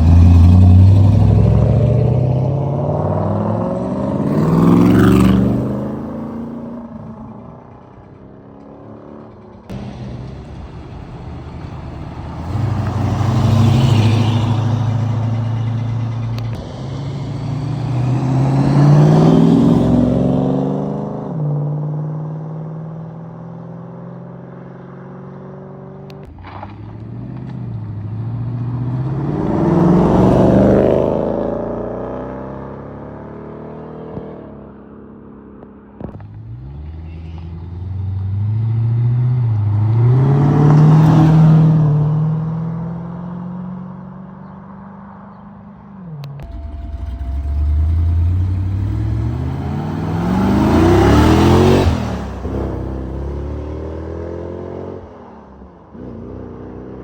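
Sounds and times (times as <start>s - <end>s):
cars accelerating away: 0.0s - 7.3s, 8.6s - 34.3s, 36.0s - 45.1s, 46.2s - 55.1s
car engines idling: 7.2s - 18.5s, 46.2s - 53.2s.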